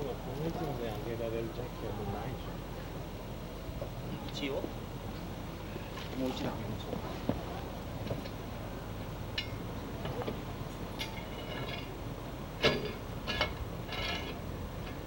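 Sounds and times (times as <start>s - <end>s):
metallic clinks and knocks: 9.4s - 10.3s, 11.0s - 11.9s.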